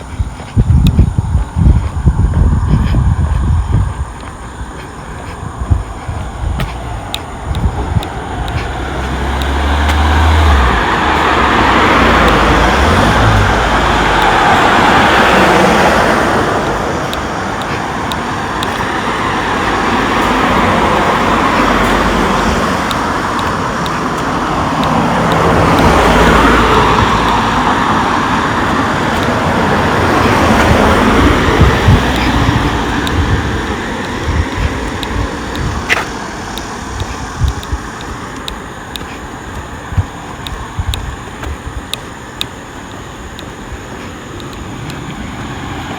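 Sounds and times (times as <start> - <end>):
low engine hum: 0.0 - 45.9
vehicles passing close by: 0.0 - 45.9.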